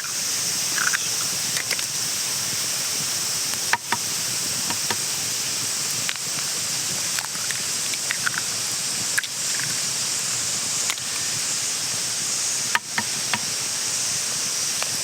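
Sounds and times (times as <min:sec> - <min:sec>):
food sizzling in a pan: 0:00.0 - 0:15.0
sharp pops and clicks: 0:00.7 - 0:09.8, 0:12.7 - 0:13.6.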